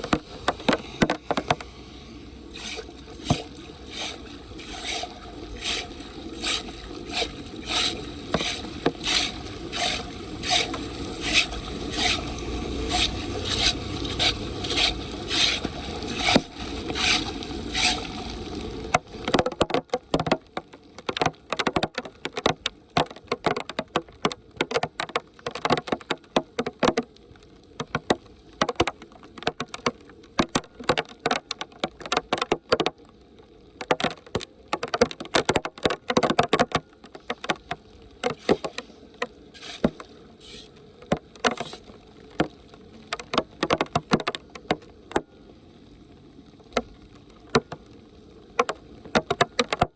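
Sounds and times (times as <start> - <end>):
sharp clicks and knocks: 0.0 - 1.7, 2.6 - 12.3, 18.9 - 27.1, 27.8 - 33.0, 33.8 - 45.3, 47.5 - 47.9, 48.6 - 49.9
tool scraping drain grate: 2.5 - 18.2, 34.8 - 38.9, 39.6 - 41.9.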